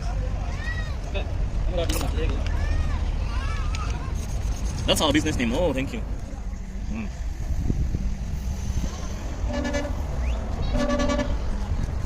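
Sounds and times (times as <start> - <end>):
low street rumble: 0.0 - 12.0
vehicle horn honking: 9.4 - 11.5.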